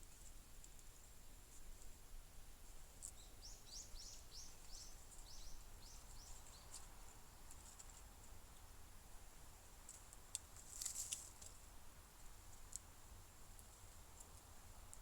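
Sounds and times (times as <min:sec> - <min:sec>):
bird song: 0:03.0 - 0:07.0
faint ticks: 0:09.9 - 0:11.6.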